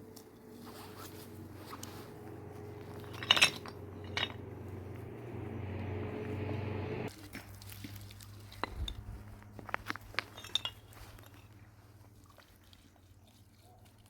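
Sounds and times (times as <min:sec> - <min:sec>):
steady low hum: 0:00.0 - 0:07.1
dishes clinking: 0:01.2 - 0:06.1.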